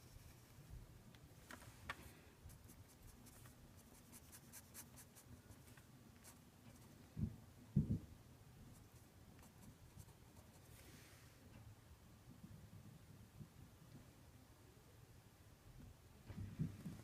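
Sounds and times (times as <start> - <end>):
pen scratching on paper: 2.5 - 6.8
soft low thumps: 7.1 - 8.2, 16.2 - 17.0.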